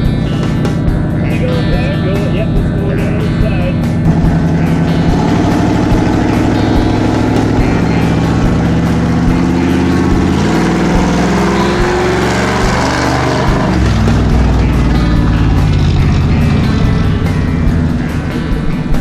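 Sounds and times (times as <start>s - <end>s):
monster truck engine running: 0.0s - 19.0s.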